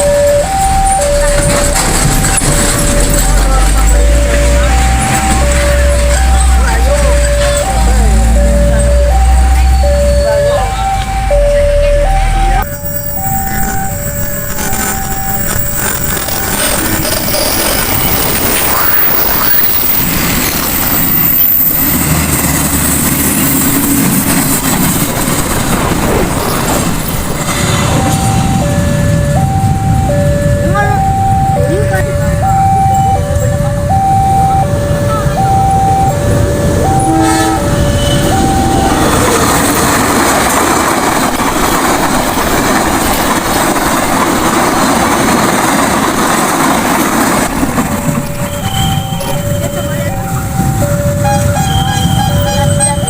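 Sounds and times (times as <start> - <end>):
train rumbling on rails: 0.0 - 53.0
trucks idling: 0.0 - 53.0
two-tone crossing warning signal: 0.0 - 53.0
train horn toot: 36.9 - 39.2, 50.4 - 53.0.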